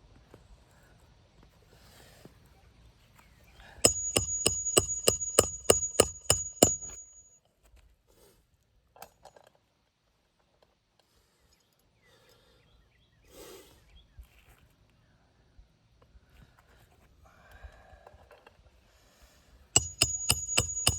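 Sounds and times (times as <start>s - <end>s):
hammer driving a nail: 3.9s - 7.2s, 19.8s - 20.9s.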